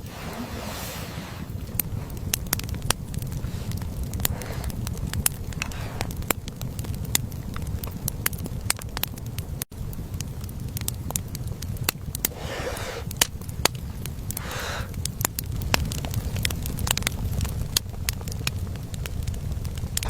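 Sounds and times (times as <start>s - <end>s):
short rustle: 0.0s - 6.2s
low rumble: 0.0s - 14.5s
fire crackling and popping: 0.0s - 20.0s.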